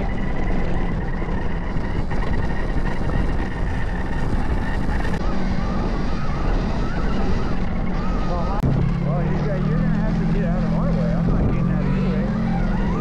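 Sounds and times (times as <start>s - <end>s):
vehicle engine rumble: 0.0s - 13.0s
wind buffeting microphone: 0.0s - 13.0s.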